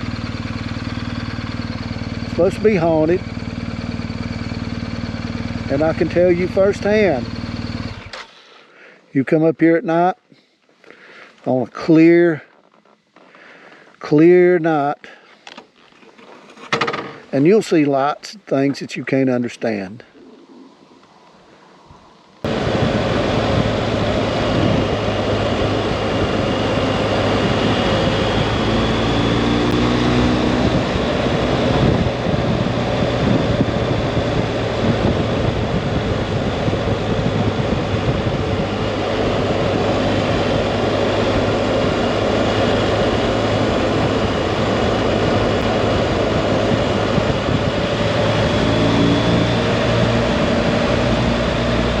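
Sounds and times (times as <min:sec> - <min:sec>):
wind and road noise: 0:00.0 - 0:08.6, 0:10.6 - 0:52.0
motorcycle engine drone: 0:00.0 - 0:09.0, 0:19.1 - 0:52.0.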